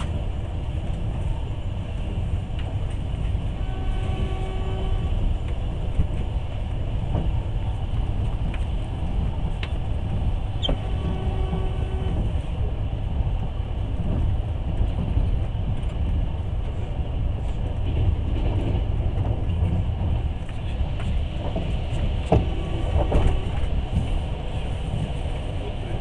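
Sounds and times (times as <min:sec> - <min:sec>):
rumble of wheels on rails: 0:00.0 - 0:26.0.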